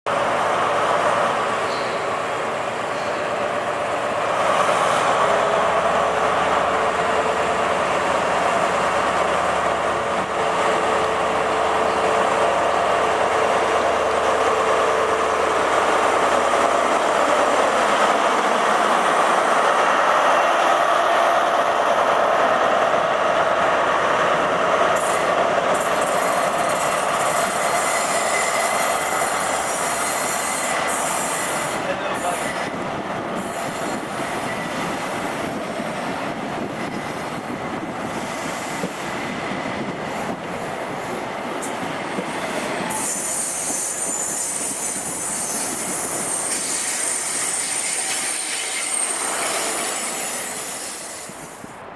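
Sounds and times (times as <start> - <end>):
train wheels squealing: 1.6 - 2.2, 2.8 - 3.4, 25.0 - 32.8, 33.4 - 51.7.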